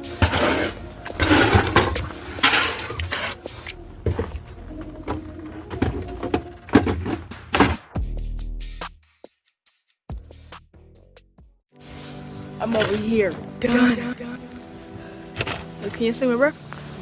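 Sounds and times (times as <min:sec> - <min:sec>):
snow shovel scraping snow: 0:00.1 - 0:03.4, 0:11.8 - 0:13.3, 0:15.3 - 0:16.2.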